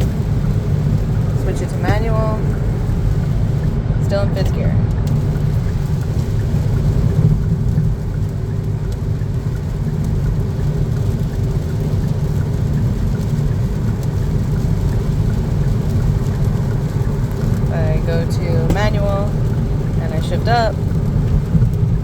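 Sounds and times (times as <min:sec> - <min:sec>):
car engine at high revs: 0:00.0 - 0:22.0
road and tyre noise: 0:00.0 - 0:22.0.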